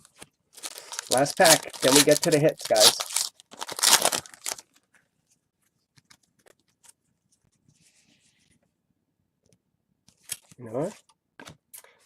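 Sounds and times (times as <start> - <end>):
cards clicking and rustling: 0.1 - 4.8
foil wrapper tearing and crinkling: 0.6 - 4.7.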